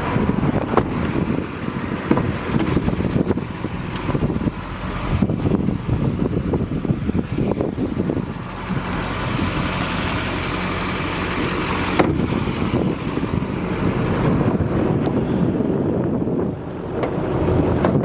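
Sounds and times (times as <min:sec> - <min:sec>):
diesel pickup engine idling: 0:00.0 - 0:18.0
wind rumbling on microphone: 0:00.0 - 0:18.0.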